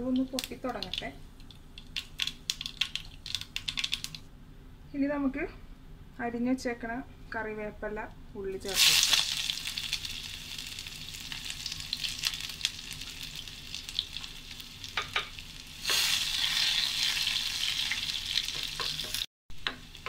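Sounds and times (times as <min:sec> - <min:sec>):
vegetables sizzling in hot oil: 0:08.6 - 0:20.0.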